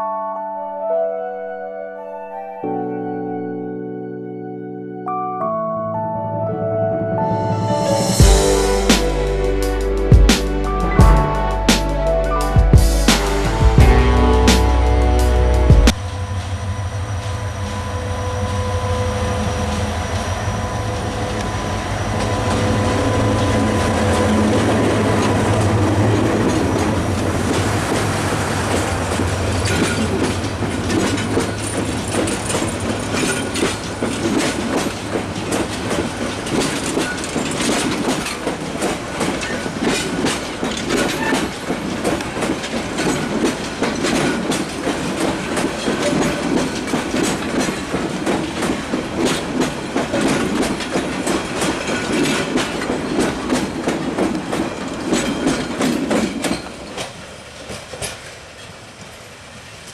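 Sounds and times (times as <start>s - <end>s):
locomotive engine hum: 7.6s - 36.9s
train wheels clickety-clack: 23.4s - 59.9s.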